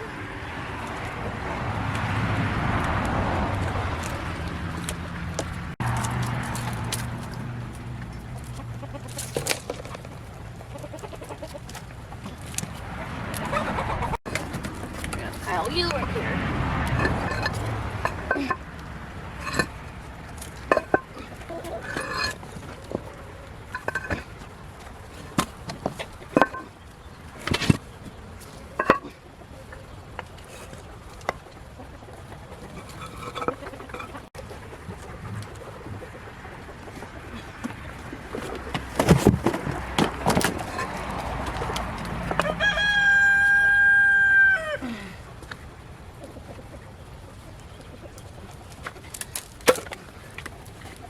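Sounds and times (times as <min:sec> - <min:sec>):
bricks knocking and clinking: 0:19.4 - 0:19.8, 0:20.4 - 0:23.0, 0:23.7 - 0:24.4, 0:25.2 - 0:26.8, 0:28.8 - 0:29.2
rooster crowing: 0:42.3 - 0:45.0.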